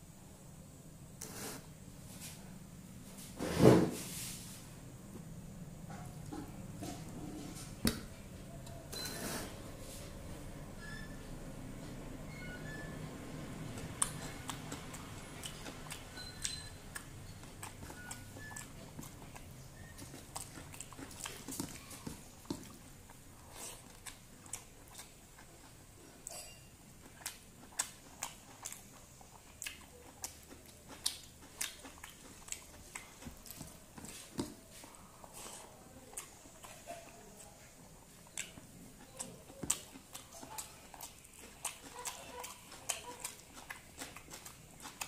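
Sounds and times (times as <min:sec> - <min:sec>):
wet chewing mouth clicks: 0:13.7 - 0:26.4, 0:27.0 - 0:45.0.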